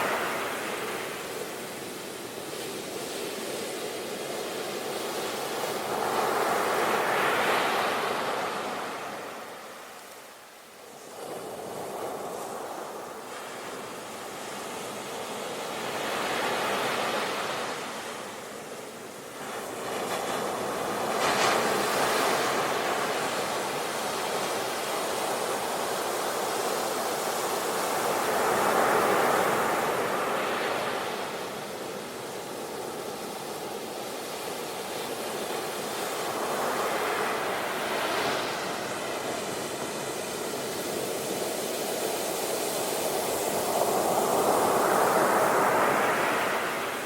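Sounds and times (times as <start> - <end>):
sea waves breaking on shore: 11.0 - 47.0.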